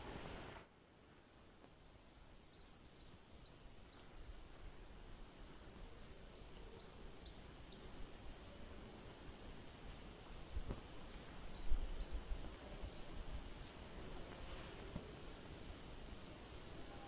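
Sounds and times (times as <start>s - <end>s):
small bird calling: 11.0s - 12.6s.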